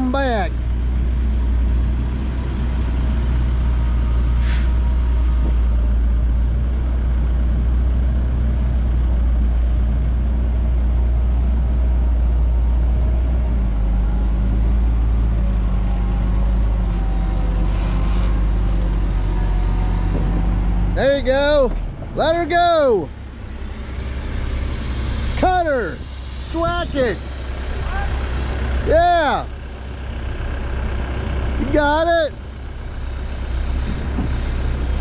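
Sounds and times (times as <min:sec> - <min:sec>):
diesel engine running: 0:00.0 - 0:35.0
air brake hiss: 0:04.3 - 0:04.9, 0:23.1 - 0:28.8, 0:32.5 - 0:35.0.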